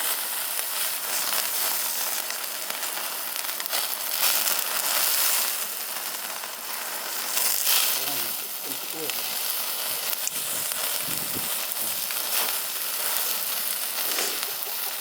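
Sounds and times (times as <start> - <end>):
meat sizzling on grill: 0.0 - 15.0.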